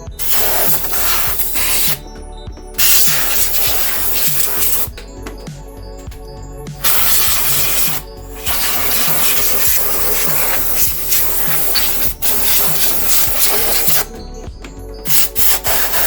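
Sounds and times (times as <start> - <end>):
compressed air hissing: 0.0 - 2.0, 2.8 - 4.9, 6.8 - 14.2, 15.0 - 16.0
music with steady beat: 0.0 - 16.0.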